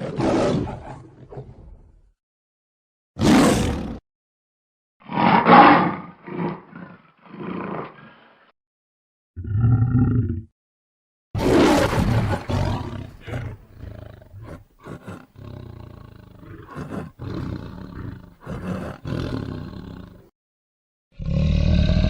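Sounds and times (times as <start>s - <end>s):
lion roaring: 0.0s - 1.8s, 3.2s - 4.0s, 5.0s - 8.3s, 9.4s - 10.5s, 11.4s - 20.3s, 21.2s - 22.0s
lion grunts: 11.4s - 20.3s.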